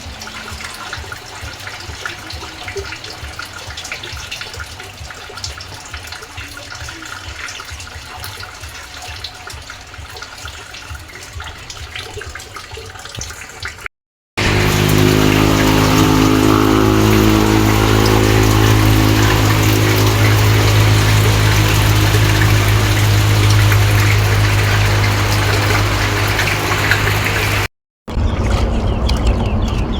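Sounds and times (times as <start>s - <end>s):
running water: 0.0s - 29.9s
loud steady low hum: 14.4s - 27.7s.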